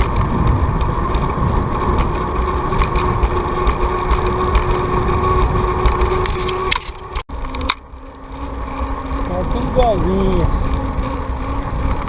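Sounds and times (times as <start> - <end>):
wind buffeting microphone: 0.0 - 7.2, 8.0 - 12.0
bicycle rolling noise: 0.0 - 12.0
steady hum: 0.0 - 12.0.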